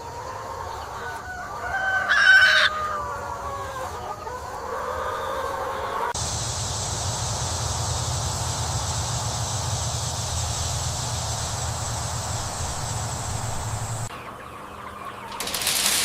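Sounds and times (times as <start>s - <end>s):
steady hiss: 6.1s - 14.1s
low hum: 6.2s - 14.1s.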